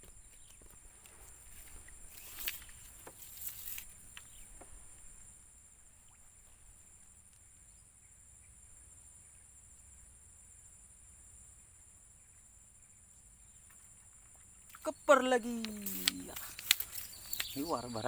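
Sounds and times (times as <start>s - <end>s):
rustling: 0.1s - 5.0s, 14.8s - 18.0s
high-pitched insect chorus: 1.1s - 5.3s, 14.7s - 18.0s
sharp clicks: 14.8s - 18.0s.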